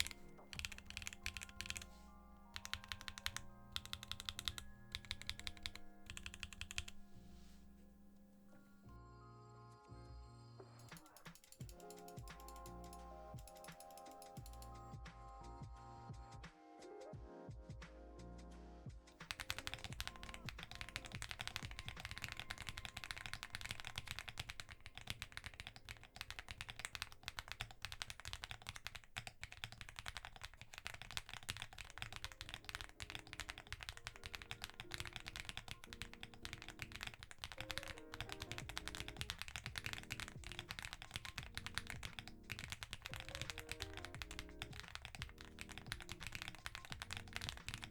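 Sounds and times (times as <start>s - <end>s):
fast typing on mechanical keyboard: 0.0s - 8.8s, 10.9s - 14.9s, 19.2s - 47.9s
soft background music: 0.0s - 47.9s.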